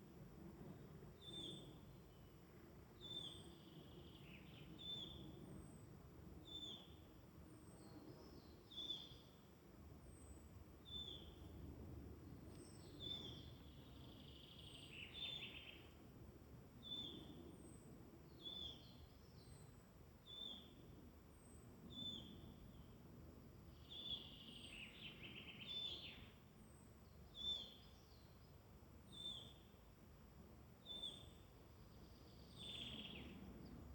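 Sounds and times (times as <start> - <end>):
soft low forest hum: 0.0 - 33.9.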